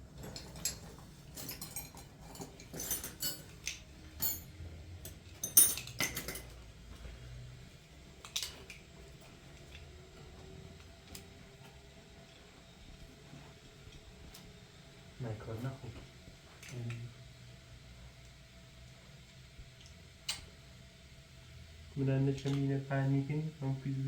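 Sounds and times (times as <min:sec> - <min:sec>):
metal tools clinking and clattering: 0:00.2 - 0:06.6.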